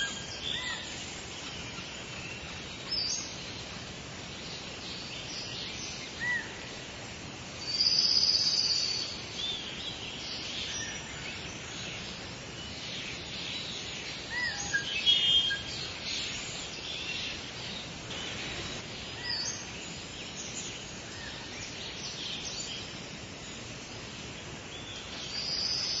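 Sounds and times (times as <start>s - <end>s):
outdoor hiss: 0.0s - 26.0s
songbirds chirping: 0.0s - 26.0s
whistled bird notes: 13.6s - 17.4s.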